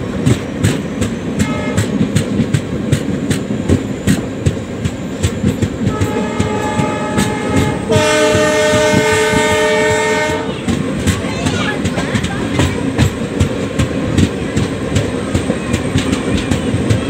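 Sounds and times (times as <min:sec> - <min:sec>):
train wheels clicking over rail joints: 0:00.0 - 0:17.0
train horn: 0:01.4 - 0:02.0, 0:05.8 - 0:10.8.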